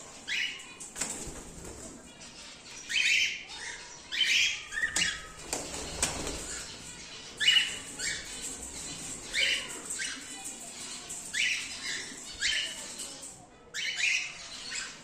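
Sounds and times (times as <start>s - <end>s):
cockatiels calling: 2.8s - 10.6s.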